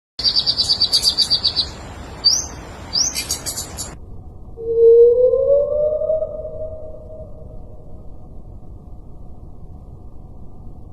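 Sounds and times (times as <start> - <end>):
songbird trilling and chirping: 0.2 - 4.0
low tone rising in pitch: 4.6 - 8.2.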